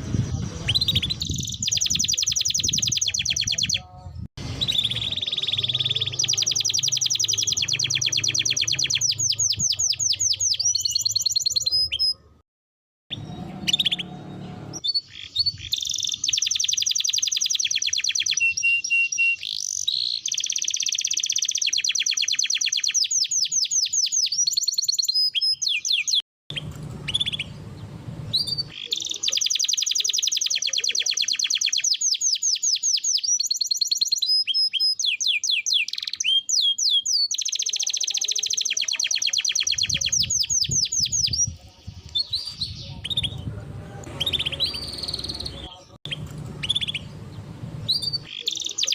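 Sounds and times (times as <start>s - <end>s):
canary singing trills: 0.0s - 12.4s, 13.1s - 48.9s.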